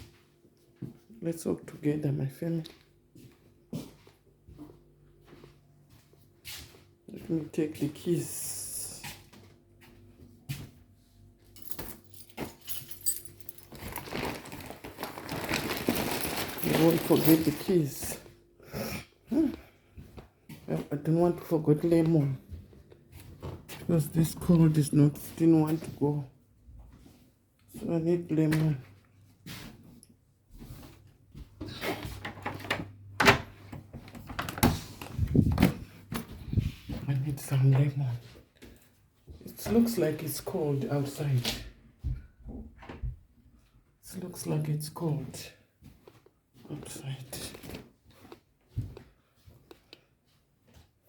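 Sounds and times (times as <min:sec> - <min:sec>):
keys jangling: 0:11.6 - 0:14.5
scraping and rustling: 0:13.6 - 0:17.7.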